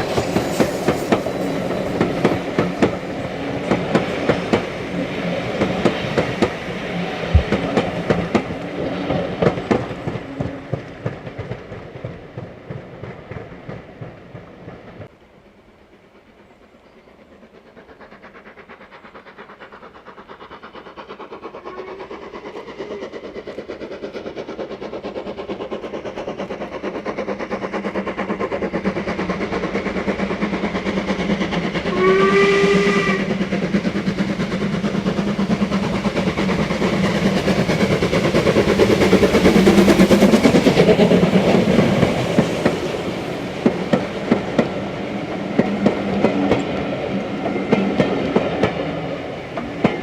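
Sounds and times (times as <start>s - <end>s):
steam locomotive approaching: 0.0s - 50.0s
steam whistle blast: 31.9s - 33.4s.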